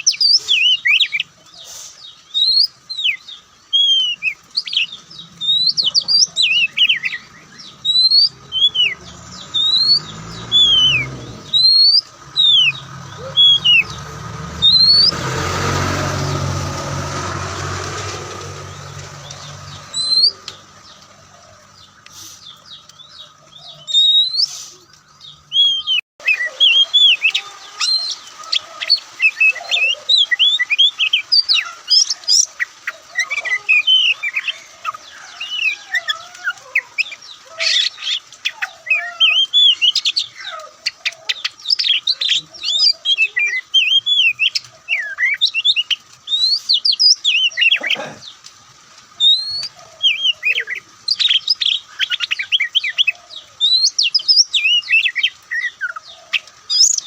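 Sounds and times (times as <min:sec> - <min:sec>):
bird singing whistles and chirps: 0:00.0 - 0:15.2, 0:18.6 - 0:21.0, 0:21.8 - 0:32.5, 0:49.2 - 0:56.1.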